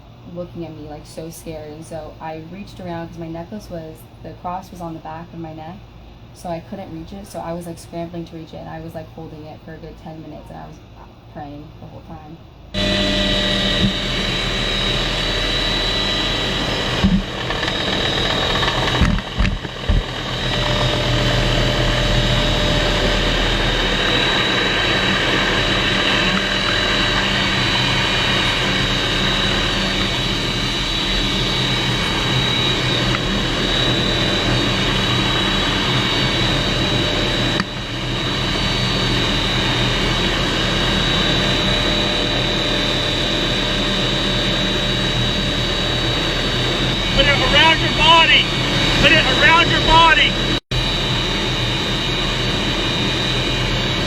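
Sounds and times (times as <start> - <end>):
helicopter engine and rotor drone: 12.7 - 54.0.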